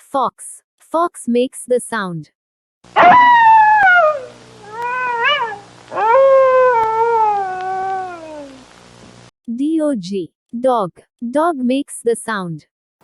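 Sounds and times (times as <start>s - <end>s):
fox crying: 3.0s - 8.6s.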